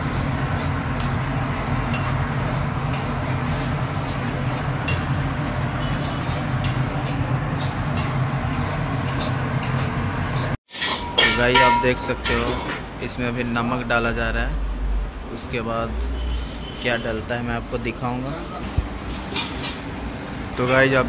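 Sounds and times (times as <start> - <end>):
onions sizzling in oil: 0.0 - 11.3
metal utensils clinking on pan: 1.9 - 2.2, 4.8 - 6.9, 10.7 - 12.9, 19.3 - 19.8.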